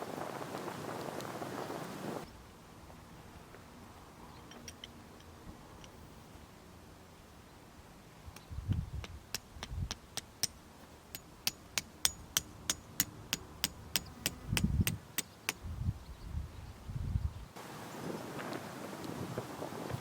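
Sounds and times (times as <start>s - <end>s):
wind noise: 0.0s - 2.3s, 8.2s - 10.2s, 13.8s - 20.0s
tent pegs being hammered: 8.7s - 15.6s.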